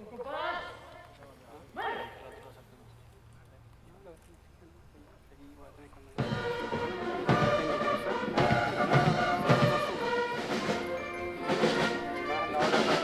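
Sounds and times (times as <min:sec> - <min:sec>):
drum beat: 0:06.2 - 0:13.0
military brass band playing: 0:06.2 - 0:13.0.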